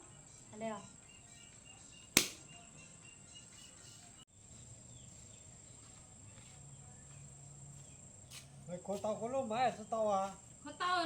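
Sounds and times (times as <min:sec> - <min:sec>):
sharp click: 0:02.2 - 0:02.4.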